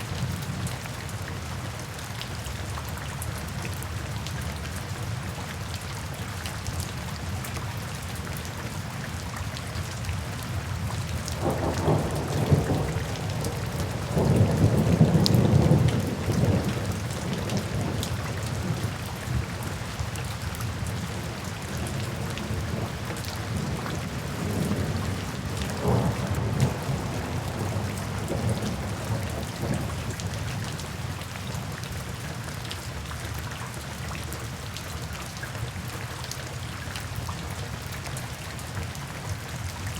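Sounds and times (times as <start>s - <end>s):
steady rain falling: 0.0s - 39.9s
thunder rumbling: 11.3s - 19.8s, 21.2s - 30.4s.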